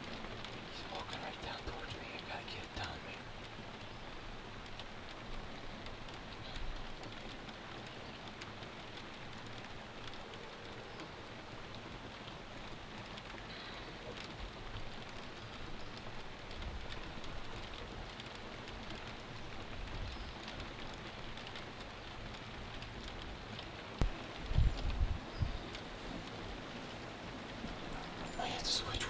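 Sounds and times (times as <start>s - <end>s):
raindrops ticking: 0.0s - 29.0s
steady rain: 0.0s - 29.0s.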